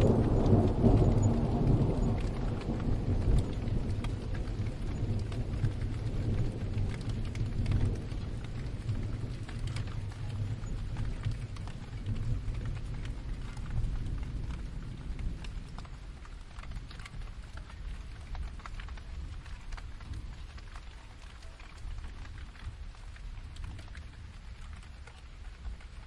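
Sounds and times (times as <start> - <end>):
distant thunder rumble: 0.0 - 20.8
rain pattering: 0.0 - 26.0.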